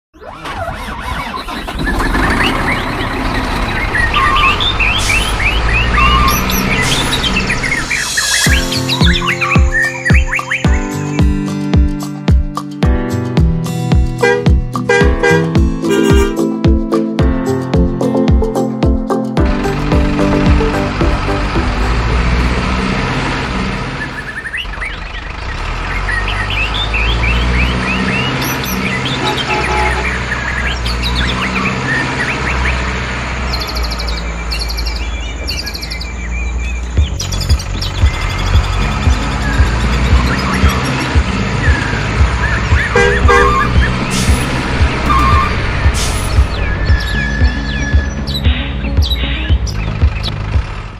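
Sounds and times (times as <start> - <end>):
birds chirping: 0.2 - 12.2, 19.4 - 50.9
low engine rumble: 0.4 - 9.2, 19.4 - 50.9.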